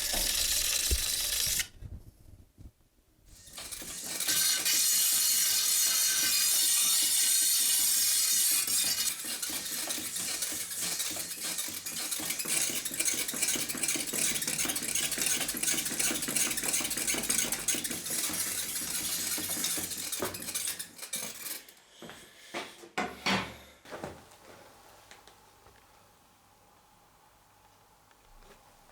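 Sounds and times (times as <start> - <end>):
metal blade grinding on stone: 0.0 - 1.6, 3.3 - 21.7.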